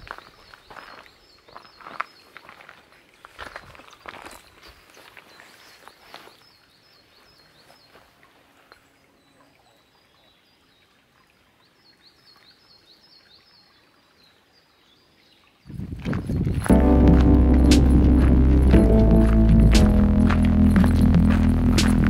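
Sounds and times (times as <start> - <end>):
footsteps: 16.0 - 22.0.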